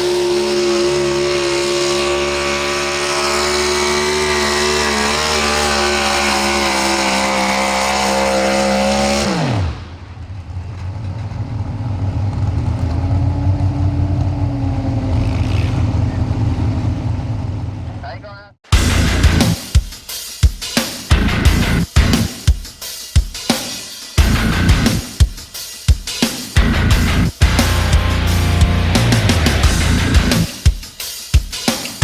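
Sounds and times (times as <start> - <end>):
truck engine at full throttle: 0.0 - 18.0, 18.8 - 19.6, 21.1 - 22.3, 24.2 - 25.0, 26.6 - 30.5
low rough engine rumble: 9.8 - 19.6.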